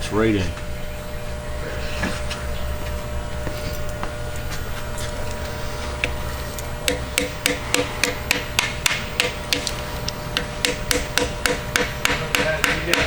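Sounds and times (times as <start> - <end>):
steady shop hum: 0.0 - 13.0
hammer tapping on metal: 6.8 - 13.0.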